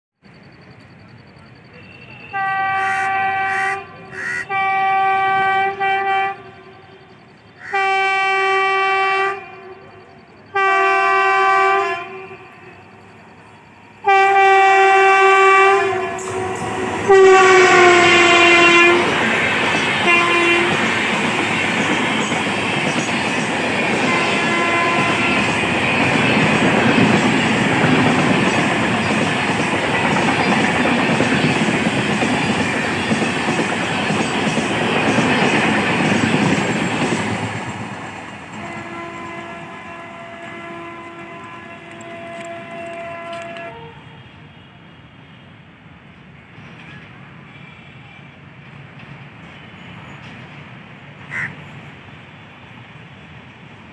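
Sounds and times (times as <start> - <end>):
distant train horn: 1.0 - 33.7, 38.5 - 45.7, 47.4 - 48.5, 51.3 - 51.6
train horn blasts: 1.6 - 22.4, 23.8 - 27.2, 38.5 - 45.6, 47.4 - 48.4
train wheels clickety-clack: 16.1 - 43.8, 46.1 - 52.0.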